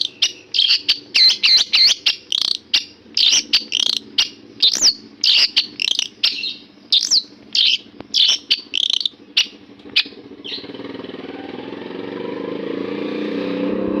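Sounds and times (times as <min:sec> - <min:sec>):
shrike singing high chirps: 0:00.0 - 0:10.7
steady motor drone: 0:00.0 - 0:14.0.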